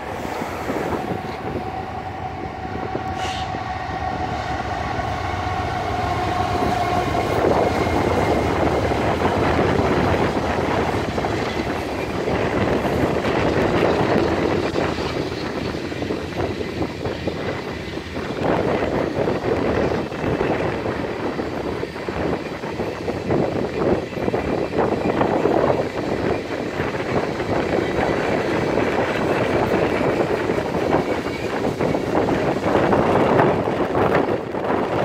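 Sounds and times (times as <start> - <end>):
freight wheels rumbling on rails: 0.0 - 35.0
locomotive horn blast: 0.9 - 7.5.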